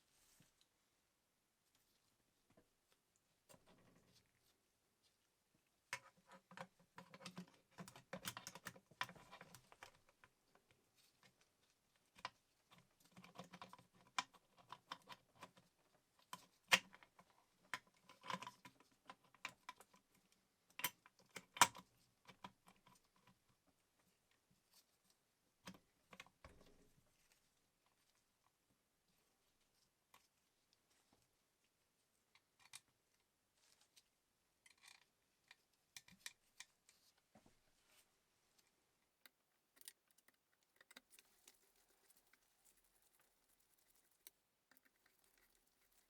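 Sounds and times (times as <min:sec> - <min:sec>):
small clicks and metallic clinks: 0:39.2 - 0:46.0.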